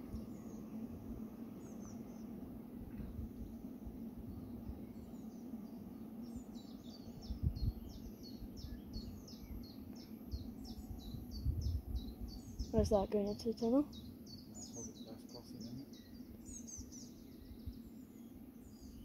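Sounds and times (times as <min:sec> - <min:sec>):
songbird chirping: 0:04.3 - 0:19.0.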